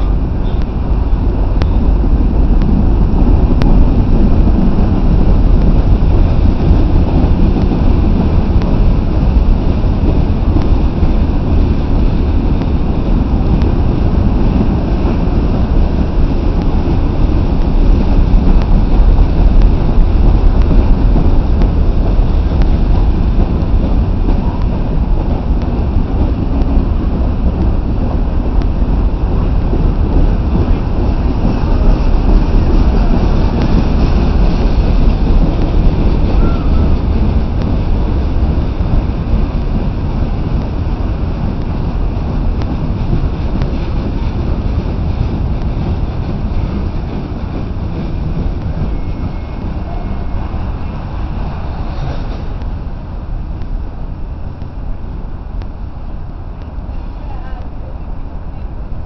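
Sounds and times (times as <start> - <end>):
freight train cars rolling past: 0.0 - 59.0
wind buffeting microphone: 0.0 - 59.0.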